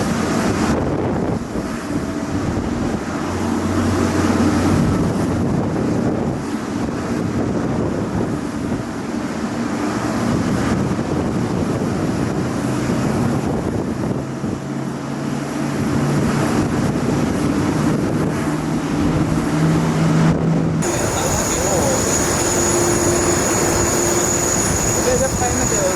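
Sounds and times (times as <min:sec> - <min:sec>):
jet engines rumbling: 0:20.8 - 0:25.9
low hum: 0:20.8 - 0:25.9.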